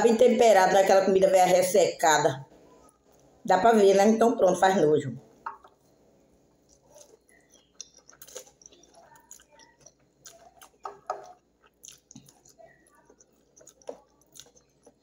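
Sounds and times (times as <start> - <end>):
person chewing spaghetti: 5.6 - 15.0
fingers clicking in wet food: 6.6 - 15.0.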